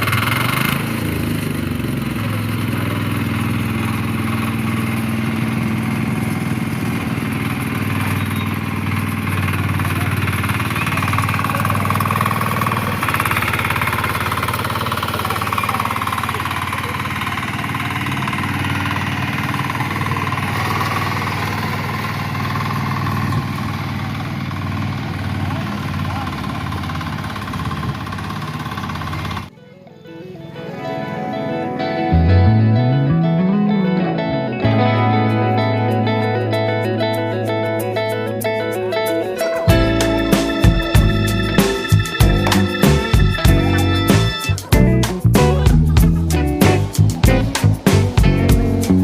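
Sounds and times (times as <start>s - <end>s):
diesel engine running steadily: 0.0s - 29.5s, 39.7s - 49.0s.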